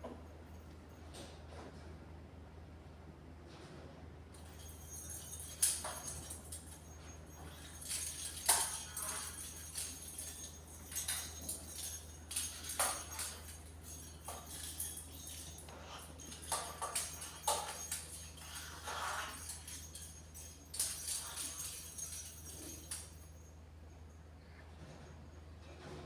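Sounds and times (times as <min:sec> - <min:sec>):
small bell jingling and rattling: 0:04.4 - 0:23.6.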